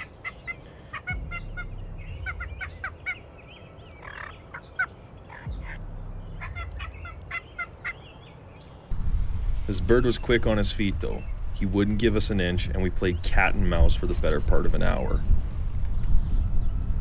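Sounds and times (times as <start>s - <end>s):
turkey gobbling: 0.0s - 3.2s, 4.0s - 5.8s, 6.4s - 8.1s
low rumble: 1.1s - 3.1s, 5.5s - 7.4s, 8.9s - 17.0s.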